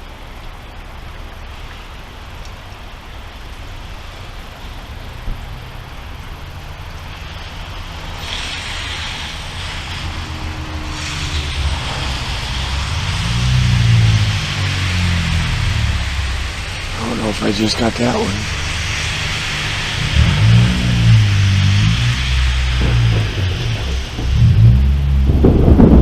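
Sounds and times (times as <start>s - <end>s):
hiss: 1.4s - 25.5s
thunder rumbling: 2.0s - 26.0s.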